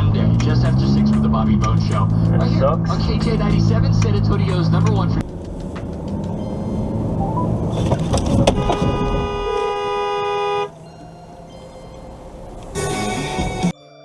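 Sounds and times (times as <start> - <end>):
vehicle and road noise: 0.0 - 13.7
car horn held: 8.4 - 10.8.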